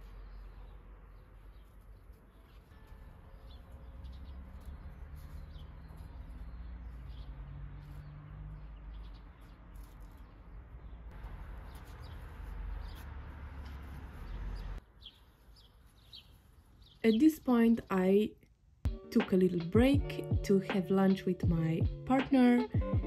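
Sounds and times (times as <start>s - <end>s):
small birds chirping: 0.0s - 18.4s.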